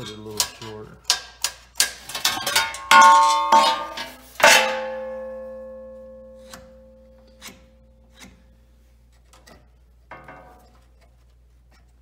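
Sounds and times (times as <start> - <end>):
hard metal strikes ringing: 2.3 - 8.4.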